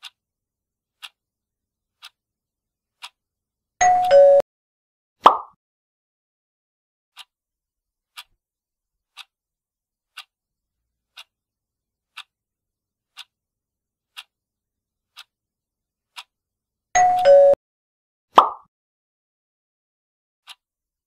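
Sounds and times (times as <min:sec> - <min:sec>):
clock ticking: 0:00.0 - 0:00.2, 0:01.0 - 0:01.2, 0:01.9 - 0:02.2, 0:03.0 - 0:03.2, 0:03.8 - 0:04.4, 0:07.2 - 0:07.4, 0:08.1 - 0:08.4, 0:09.1 - 0:09.4, 0:10.1 - 0:10.4, 0:11.1 - 0:11.4, 0:12.1 - 0:12.4, 0:13.1 - 0:13.4, 0:14.1 - 0:14.4, 0:15.1 - 0:15.4, 0:16.1 - 0:16.4, 0:17.0 - 0:17.6, 0:20.4 - 0:20.7
two-tone time's-up signal: 0:03.8 - 0:04.4, 0:17.0 - 0:17.6.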